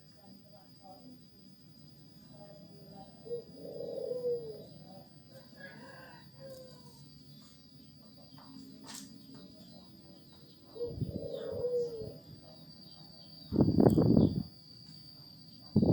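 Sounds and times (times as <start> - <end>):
birds calling: 2.9 - 14.5.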